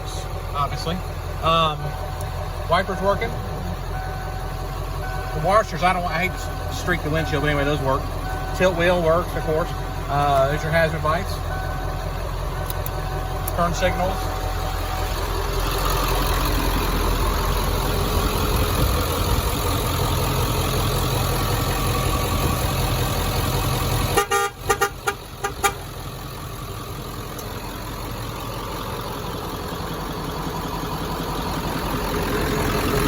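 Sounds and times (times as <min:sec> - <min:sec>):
diesel engine idling: 0:00.0 - 0:33.0
truck horn toots: 0:24.1 - 0:26.0.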